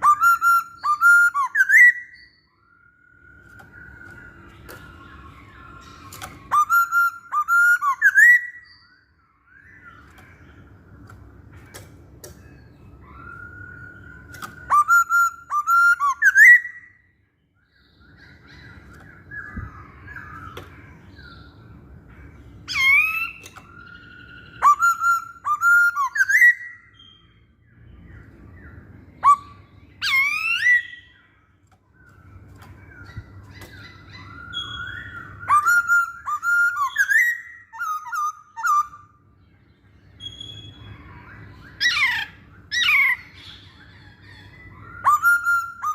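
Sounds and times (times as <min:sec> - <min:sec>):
bird singing whistled phrases: 0:00.0 - 0:10.1, 0:12.6 - 0:17.0, 0:22.7 - 0:27.3, 0:29.2 - 0:31.2, 0:33.0 - 0:39.1, 0:40.1 - 0:45.9.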